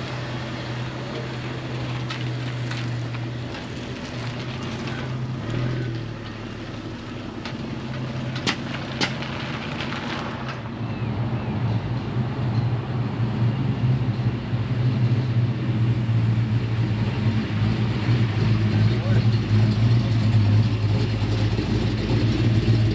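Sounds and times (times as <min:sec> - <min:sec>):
vehicle engine idling: 0:13.4 - 0:22.9.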